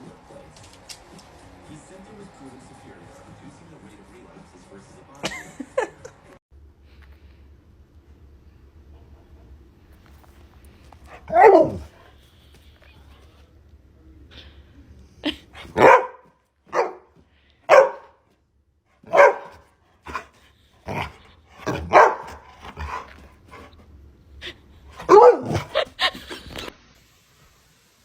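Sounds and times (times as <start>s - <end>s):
dog barking: 11.1s - 12.1s, 15.6s - 18.2s, 19.0s - 20.3s, 20.9s - 23.7s, 25.0s - 25.9s.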